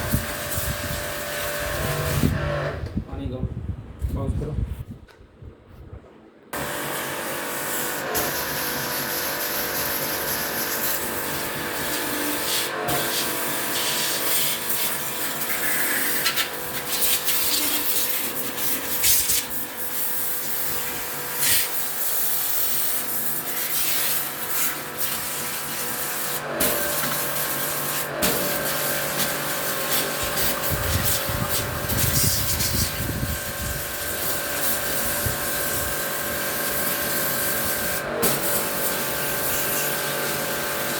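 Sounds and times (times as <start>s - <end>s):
jet pump motor hum: 0.0s - 3.0s, 6.6s - 40.9s
water spray hissing: 11.8s - 40.9s.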